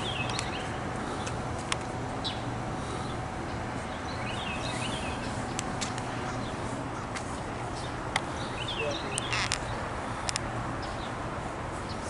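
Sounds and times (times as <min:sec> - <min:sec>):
small birds chirping: 0:00.0 - 0:01.4, 0:02.2 - 0:12.0
low outdoor rumble: 0:00.0 - 0:12.0.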